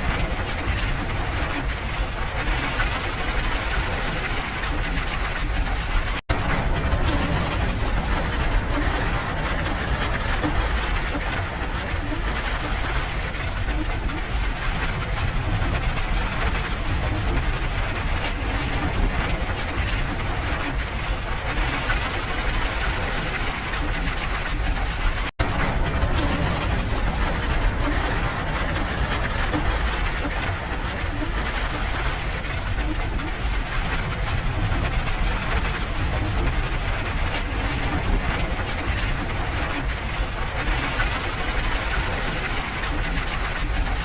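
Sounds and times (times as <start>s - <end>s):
low rumble: 2.2s - 42.5s
steady rain hiss: 6.3s - 13.6s, 25.4s - 43.2s.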